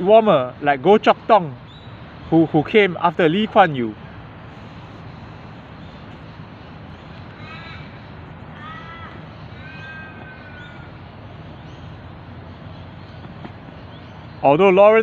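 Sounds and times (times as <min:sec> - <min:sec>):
bird calling: 0:03.4 - 0:15.0.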